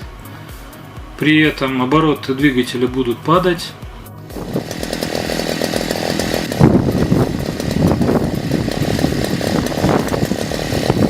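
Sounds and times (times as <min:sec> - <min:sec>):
two-stroke engine running unsteadily: 0:04.3 - 0:11.0.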